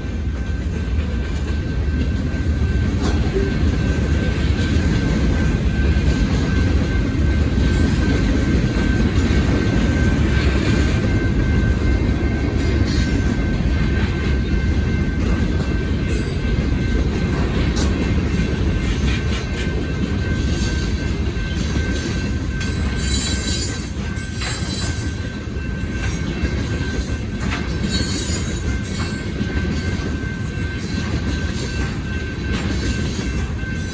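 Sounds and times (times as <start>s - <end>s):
crossing warning bell ringing: 0.0s - 33.9s
train wheels rumbling on rails: 0.0s - 33.9s.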